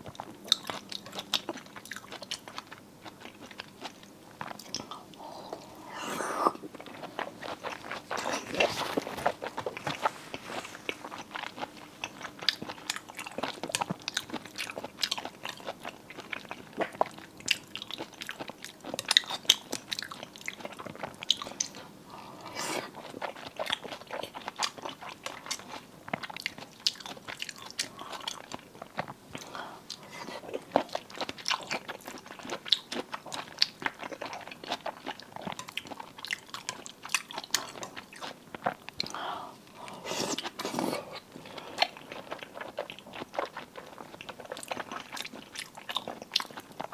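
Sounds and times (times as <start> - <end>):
person crunching and chewing: 0.1 - 46.9.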